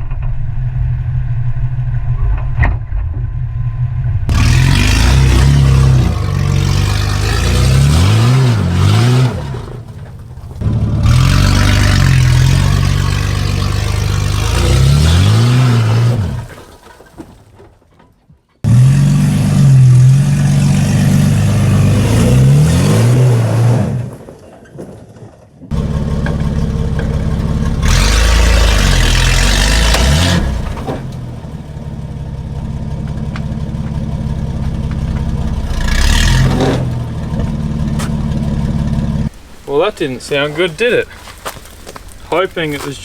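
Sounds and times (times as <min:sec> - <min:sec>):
engine revving hard without exhaust: 0:04.3 - 0:09.9, 0:10.6 - 0:16.5, 0:18.7 - 0:24.1, 0:25.7 - 0:31.0, 0:35.6 - 0:37.8.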